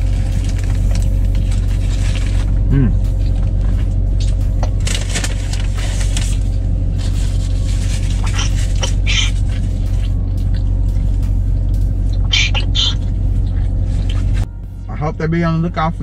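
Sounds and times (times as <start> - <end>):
foil wrapper crinkling: 0.0 - 10.1
car engine idling: 0.0 - 16.0
chewing and mouth smacks: 13.4 - 14.4.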